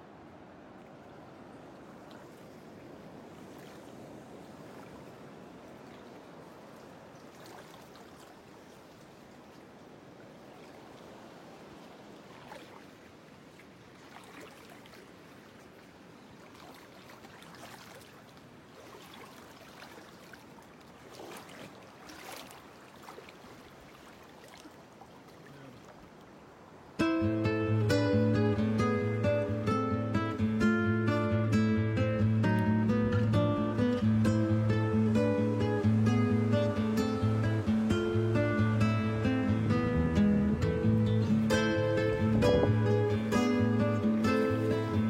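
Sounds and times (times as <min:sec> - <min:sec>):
faint moving water: 0:00.0 - 0:45.0
small splashes and trickles: 0:02.0 - 0:11.2, 0:11.8 - 0:26.8.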